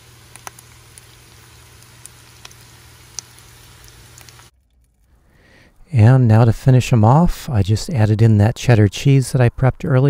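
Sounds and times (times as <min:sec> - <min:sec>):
food sizzling in oil: 0:00.0 - 0:04.5
steady low hum: 0:00.0 - 0:10.0.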